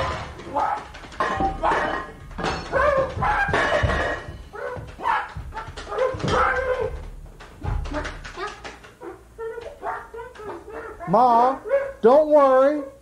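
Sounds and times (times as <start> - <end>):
low thuds: 0.0 - 8.4.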